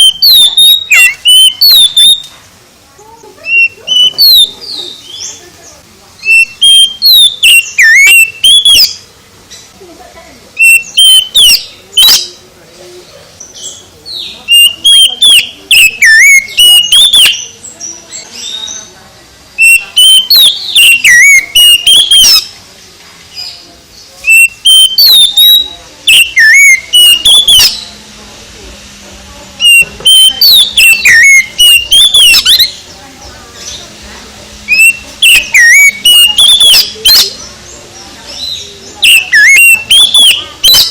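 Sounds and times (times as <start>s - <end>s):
bird singing whistled notes: 0.0s - 2.3s, 3.4s - 5.4s, 6.2s - 9.0s, 10.6s - 12.4s, 13.5s - 18.9s, 19.6s - 22.5s, 24.2s - 28.0s, 29.6s - 33.0s, 34.7s - 40.9s
bird twittering: 0.0s - 2.3s, 3.4s - 5.5s, 6.2s - 9.1s, 10.6s - 12.4s, 13.4s - 19.0s, 19.6s - 22.6s, 24.2s - 28.0s, 29.6s - 33.9s, 34.7s - 40.9s.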